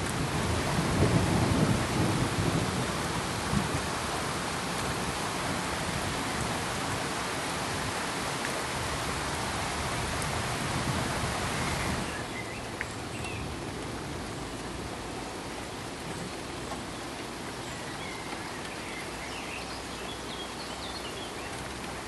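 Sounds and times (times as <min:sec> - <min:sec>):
steady rain: 0:00.0 - 0:22.0
water drips: 0:11.7 - 0:22.0.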